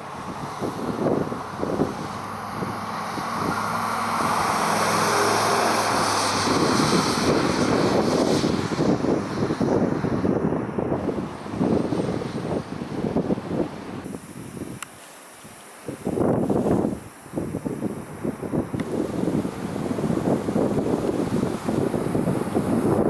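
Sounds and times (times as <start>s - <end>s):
vehicle driving past: 0.0s - 9.6s
wind buffeting microphone: 0.0s - 23.0s.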